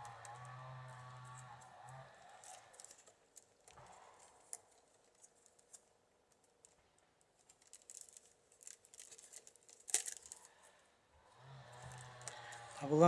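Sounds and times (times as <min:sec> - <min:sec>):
wicker rods rustling and creaking: 0:00.0 - 0:13.0
rod breaking with a crackle: 0:07.5 - 0:10.5.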